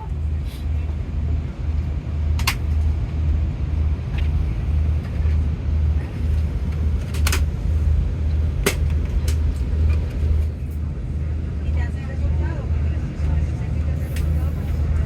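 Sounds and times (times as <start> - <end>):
airliner cabin hum: 0.0 - 15.0.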